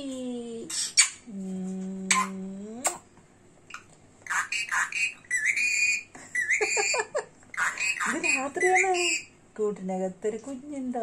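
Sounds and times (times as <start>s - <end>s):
parrot chirping and whistling: 0.7s - 1.3s, 3.7s - 9.4s.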